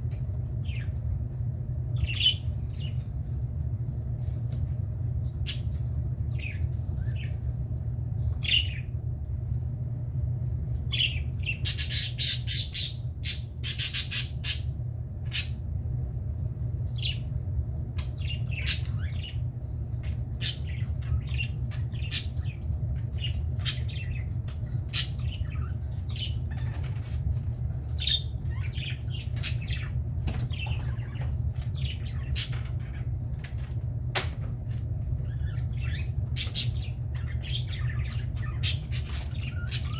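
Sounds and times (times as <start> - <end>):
steady low hum: 0.0 - 39.9
budgerigars chattering and squawking: 11.0 - 14.7, 20.1 - 27.1, 28.0 - 33.2, 35.2 - 39.9.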